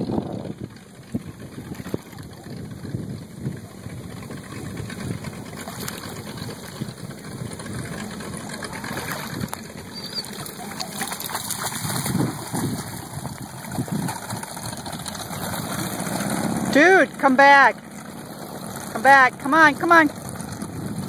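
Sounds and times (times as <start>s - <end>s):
water splashing and sloshing: 0.0s - 21.0s.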